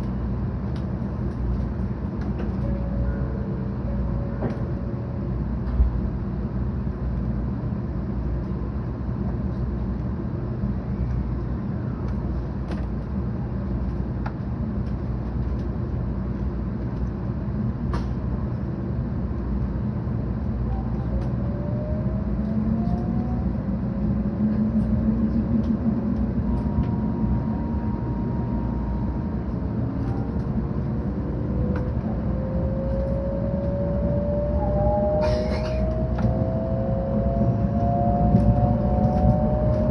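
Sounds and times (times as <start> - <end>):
train running rumble: 0.0 - 39.9
faint rising whines: 20.5 - 39.9.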